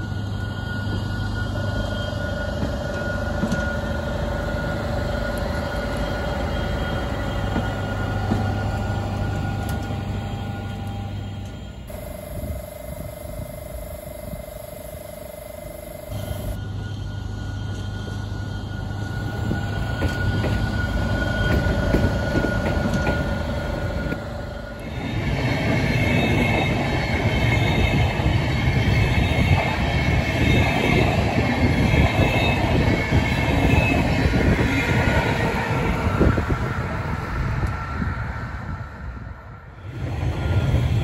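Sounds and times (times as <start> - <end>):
electric locomotive passing: 0.0 - 41.0
train rail rumble: 0.0 - 41.0
inspection car humming: 11.9 - 16.6.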